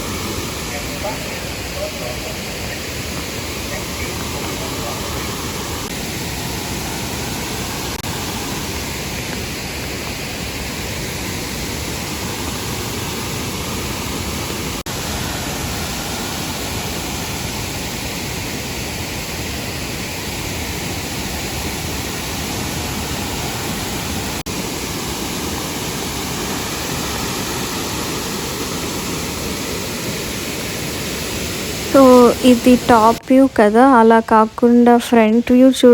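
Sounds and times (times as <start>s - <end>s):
waterfall roaring: 0.0s - 35.9s.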